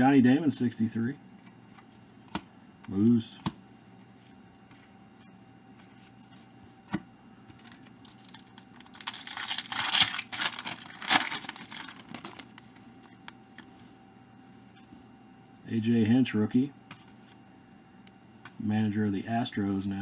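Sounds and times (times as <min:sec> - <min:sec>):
wrapper crinkling and tearing: 0:07.6 - 0:13.6.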